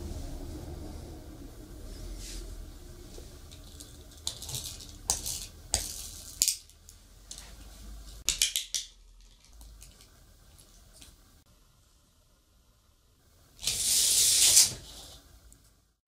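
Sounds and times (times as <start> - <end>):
small hard objects clattering: 3.5 - 7.5, 8.2 - 10.1.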